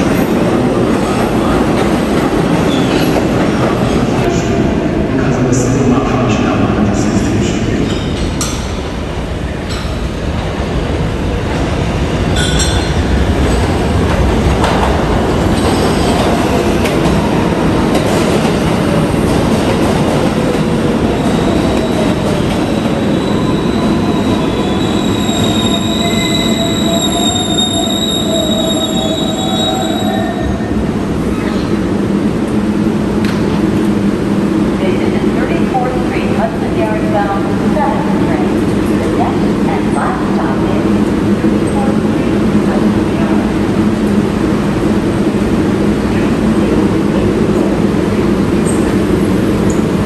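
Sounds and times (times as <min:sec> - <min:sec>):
subway train rumble: 0:00.0 - 0:50.0
train wheels squealing: 0:21.7 - 0:31.7.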